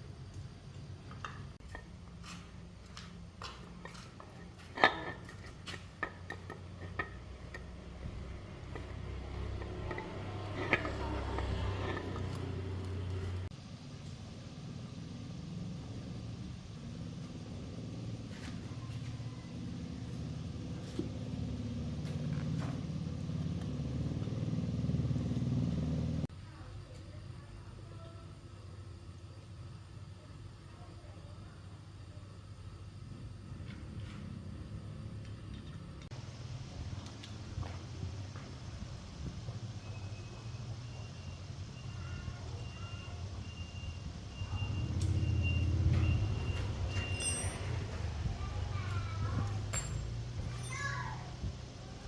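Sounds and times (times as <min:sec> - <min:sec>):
metal parts clinking: 0:47.1 - 0:47.8, 0:49.7 - 0:50.8.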